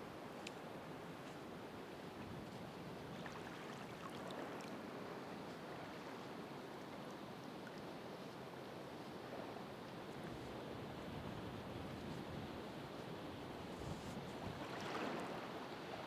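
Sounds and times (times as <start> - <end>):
faint ticks: 0.4 - 0.6
ocean waves washing onto shore: 14.4 - 16.0.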